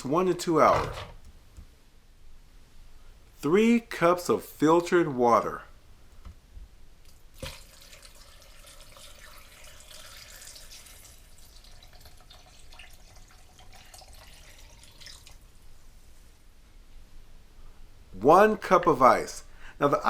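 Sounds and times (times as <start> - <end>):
water pouring into blender container: 7.4 - 15.4.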